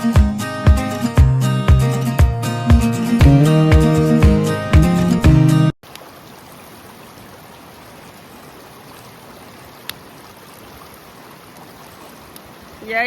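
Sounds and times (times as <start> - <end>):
acoustic guitar music: 0.0 - 5.8
river rushing: 5.9 - 13.0.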